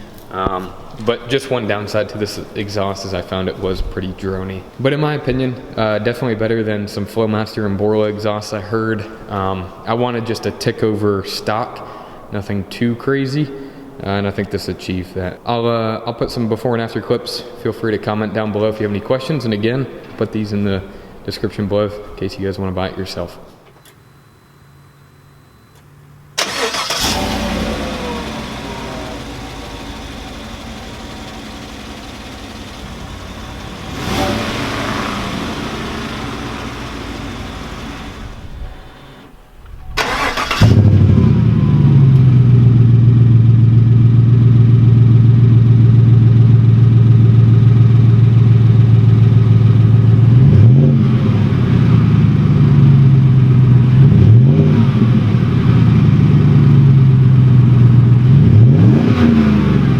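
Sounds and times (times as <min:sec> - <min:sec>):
truck exhaust idling and revving: 0:26.5 - 0:39.0, 0:40.6 - 0:59.9.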